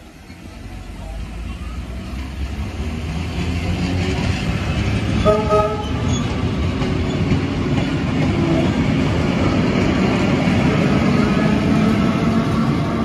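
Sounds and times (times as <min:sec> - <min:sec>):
electric train rumbling past: 0:00.0 - 0:13.0
train horn toot: 0:05.2 - 0:06.2.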